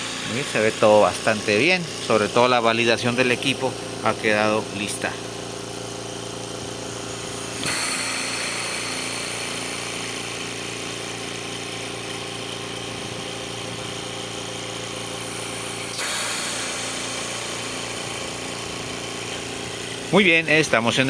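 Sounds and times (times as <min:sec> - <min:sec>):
oxygen concentrator humming: 0:00.0 - 0:21.0.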